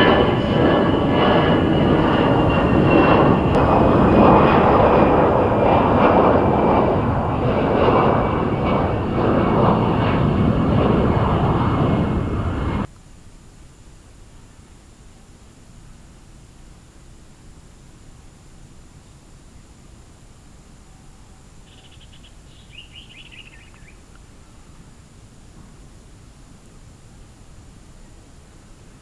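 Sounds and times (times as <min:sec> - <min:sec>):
jet engines roaring with fan whine: 0:00.0 - 0:12.9.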